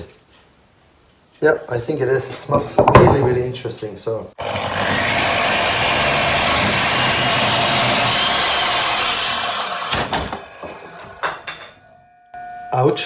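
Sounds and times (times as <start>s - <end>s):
power tool cutting wood: 4.4s - 11.2s.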